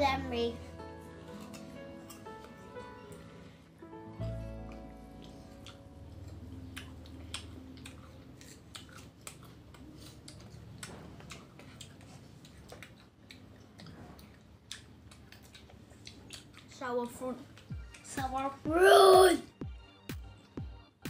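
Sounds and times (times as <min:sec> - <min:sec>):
crunching and chewing of fruit: 0:01.2 - 0:03.3, 0:04.2 - 0:18.1.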